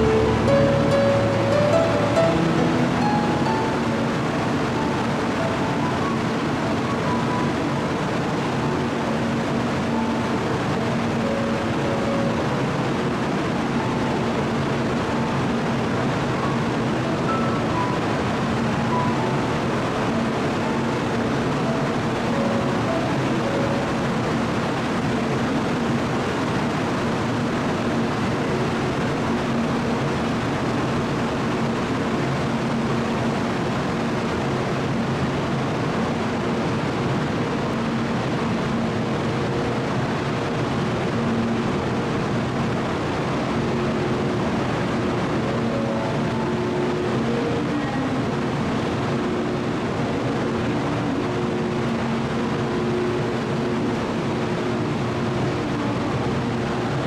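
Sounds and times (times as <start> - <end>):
faint wavering tones: 0.0 - 25.8
high-speed train running: 0.0 - 57.0.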